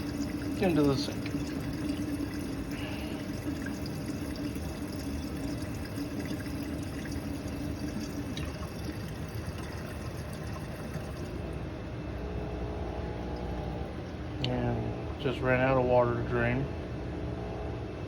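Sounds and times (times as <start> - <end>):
water flowing down drain: 0.0 - 12.4
drain pump humming: 0.0 - 18.0.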